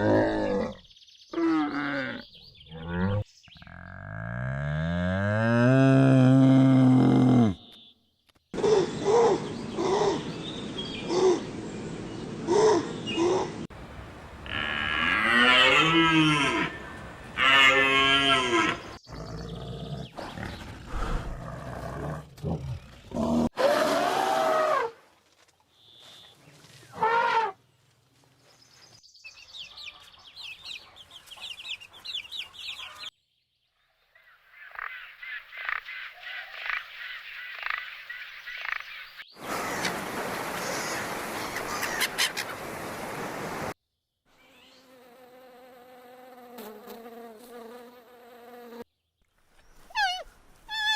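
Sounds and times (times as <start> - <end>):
cow mooing: 14.4 - 18.9
insect buzzing: 44.4 - 48.9.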